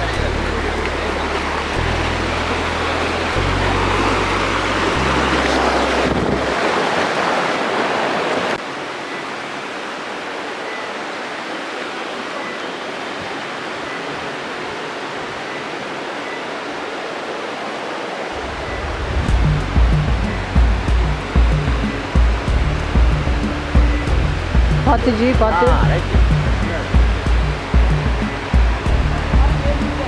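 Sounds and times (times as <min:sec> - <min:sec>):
background music bass: 0:00.0 - 0:06.8, 0:18.4 - 0:30.0
stream water rushing: 0:00.0 - 0:30.0.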